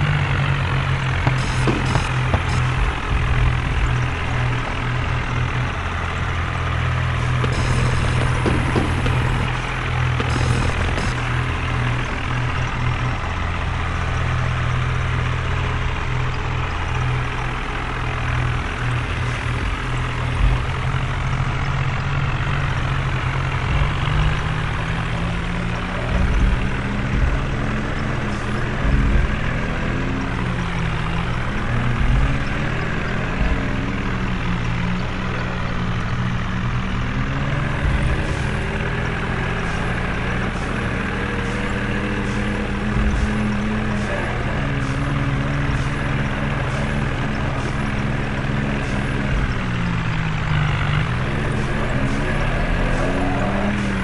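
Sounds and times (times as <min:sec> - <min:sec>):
tractor engine running: 0:00.0 - 0:54.0
low thumps: 0:01.2 - 0:05.8, 0:07.0 - 0:13.4.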